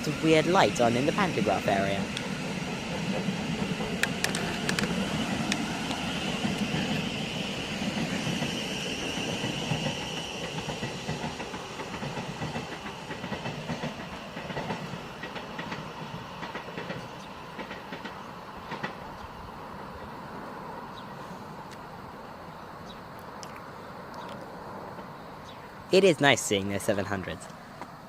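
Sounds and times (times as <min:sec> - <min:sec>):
train traction motors whining: 0:00.0 - 0:23.0
train wheels clicking over track: 0:00.4 - 0:19.3.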